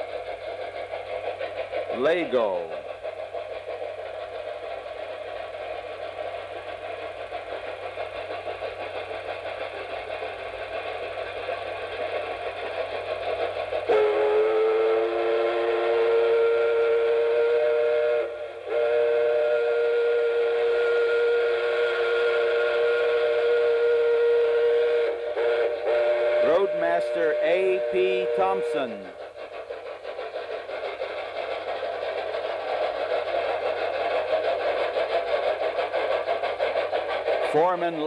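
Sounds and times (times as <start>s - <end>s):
train running: 0.0s - 38.0s
multi-tone train whistle: 13.8s - 29.5s, 37.4s - 38.0s.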